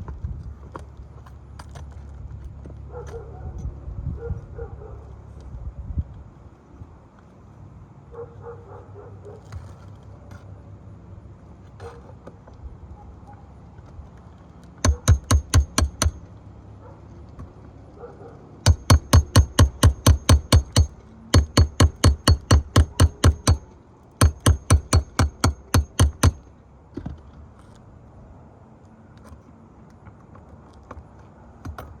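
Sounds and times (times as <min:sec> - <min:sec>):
hammer blows ringing: 0:14.8 - 0:16.2, 0:18.7 - 0:23.6, 0:24.2 - 0:26.4.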